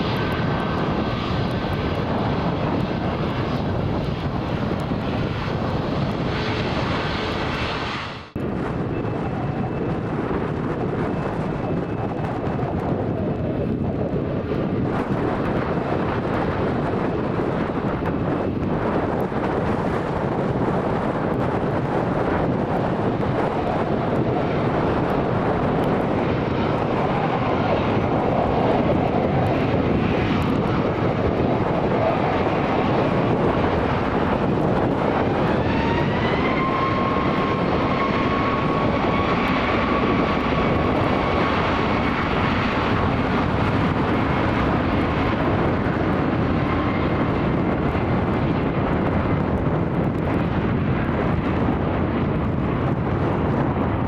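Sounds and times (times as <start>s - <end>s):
jet engines spooling up: 21.7s - 47.6s.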